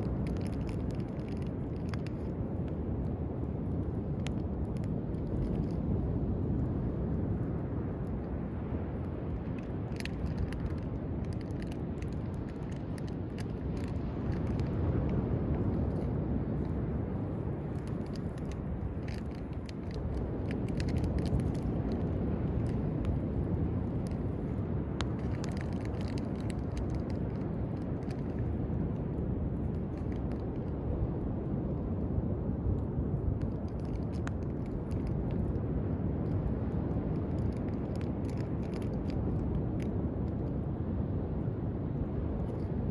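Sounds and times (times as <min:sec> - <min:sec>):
campfire crackling: 0:00.0 - 0:30.9.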